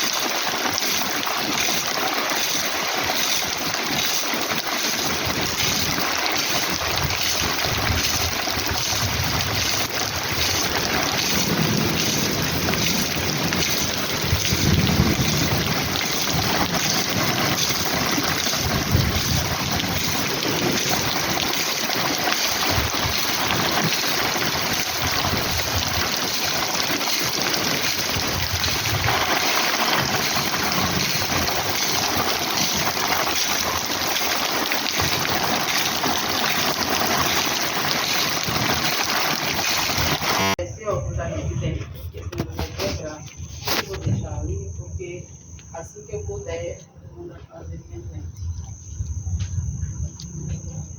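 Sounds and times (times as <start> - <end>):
heavy rain: 0.0 - 40.6.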